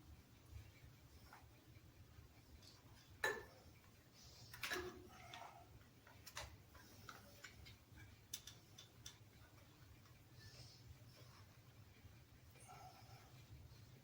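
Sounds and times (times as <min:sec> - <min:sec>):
small ticks: 0:06.1 - 0:10.3.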